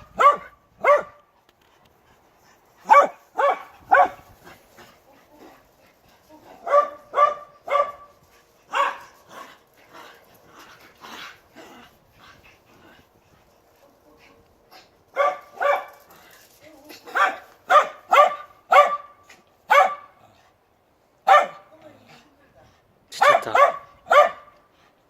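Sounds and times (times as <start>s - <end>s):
dog barking: 0.0s - 1.2s, 2.9s - 4.2s, 6.6s - 8.1s, 8.7s - 9.1s, 15.2s - 16.0s, 17.1s - 20.1s, 21.2s - 21.6s, 23.2s - 24.6s.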